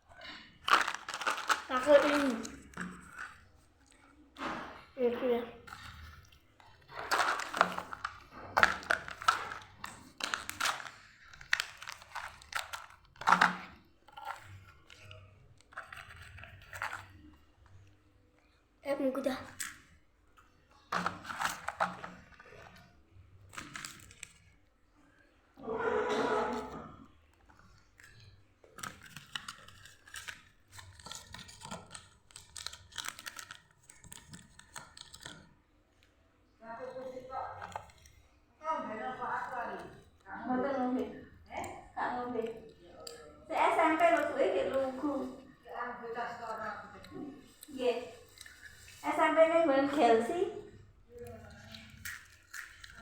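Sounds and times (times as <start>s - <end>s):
crinkling: 0.0s - 53.0s
crunchy eating bites: 0.1s - 3.4s, 5.7s - 17.3s.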